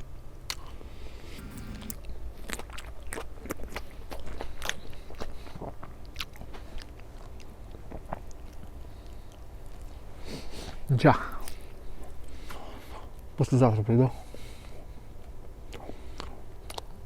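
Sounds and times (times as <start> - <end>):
person chewing and crunching food: 2.4 - 9.9, 15.7 - 17.0.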